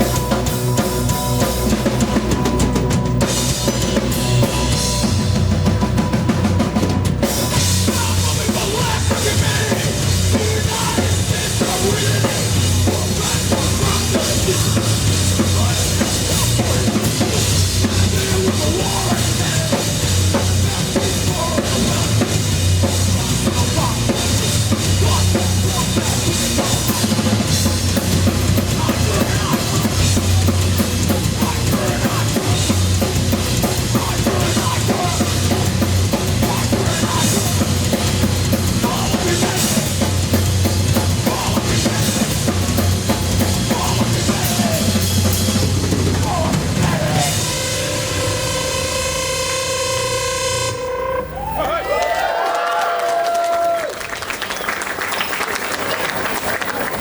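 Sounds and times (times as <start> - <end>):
heavy bass line: 0.0 - 52.3
drum kit: 0.0 - 57.0
rock band playing: 0.0 - 57.0
cymbals: 24.2 - 51.8.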